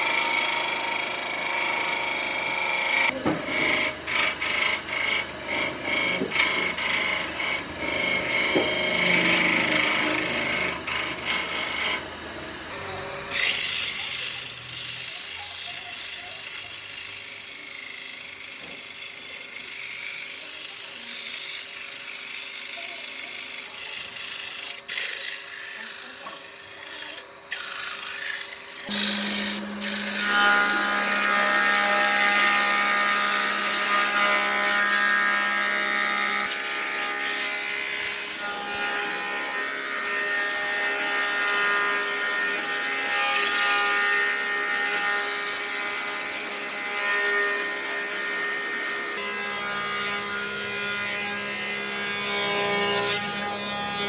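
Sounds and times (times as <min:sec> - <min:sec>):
power tool motor whine: 0:00.0 - 0:54.0
scratchy rubbing on wood: 0:28.8 - 0:39.5.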